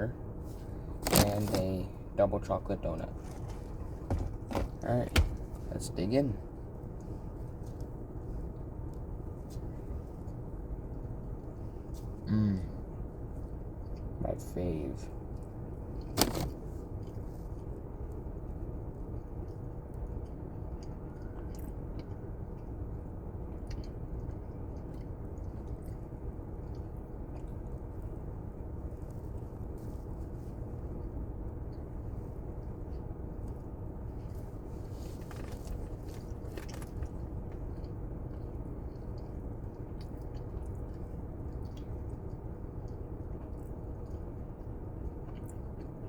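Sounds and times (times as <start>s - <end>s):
low background rumble: 0.0s - 46.0s
person chewing food: 16.8s - 31.1s, 31.7s - 46.0s.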